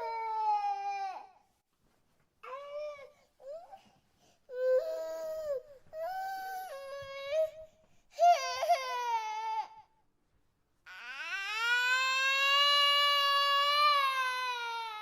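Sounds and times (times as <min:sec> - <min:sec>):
baby crying: 0:08.2 - 0:09.9.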